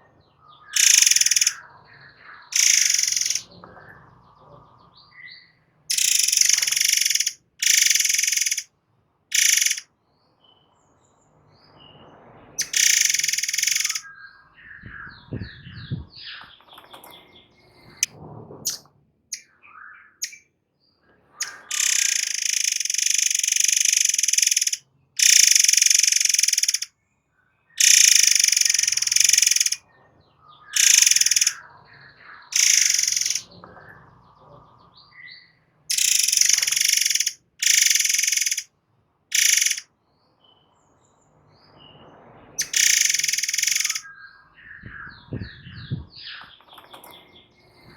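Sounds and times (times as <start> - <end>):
bird calling in shrill hissing bursts: 0.8 - 1.6, 2.6 - 3.5, 5.9 - 8.7, 9.3 - 9.8, 12.6 - 14.0, 21.4 - 26.9, 27.8 - 29.8, 30.8 - 31.6, 32.6 - 33.5, 35.9 - 38.7, 39.3 - 39.9, 42.6 - 44.0
short bird chirps: 0.8 - 1.6, 2.6 - 3.5, 5.9 - 8.6, 9.3 - 9.8, 12.6 - 14.2, 21.4 - 26.9, 30.8 - 31.6, 32.5 - 33.6, 35.9 - 38.6, 39.3 - 39.9, 42.6 - 46.5.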